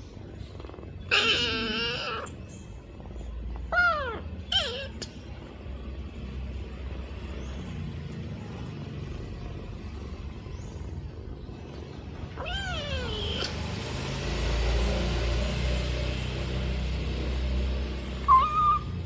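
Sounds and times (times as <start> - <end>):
kitten meowing: 12.4 - 13.6, 18.3 - 18.9.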